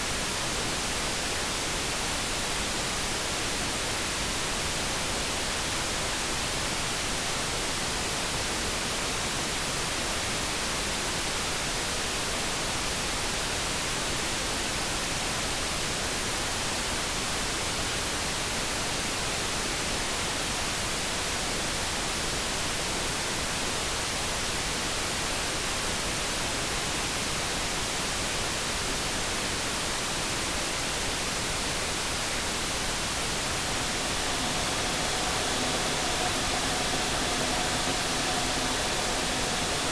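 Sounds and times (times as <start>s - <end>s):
soft brown noise hiss: 29.8s - 39.9s.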